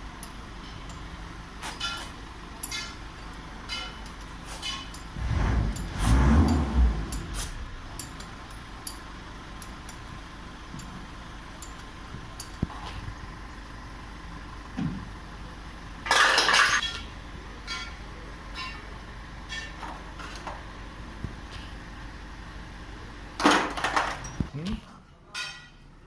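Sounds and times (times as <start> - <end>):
metal tools clinking: 1.7 - 5.1.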